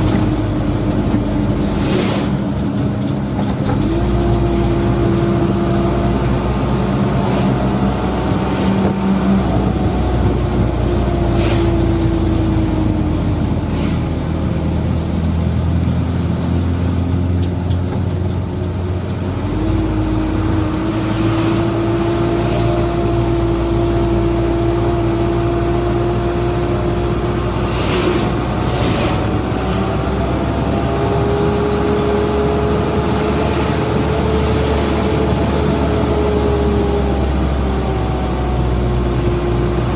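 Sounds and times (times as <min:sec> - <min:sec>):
truck engine droning: 0:00.0 - 0:39.9.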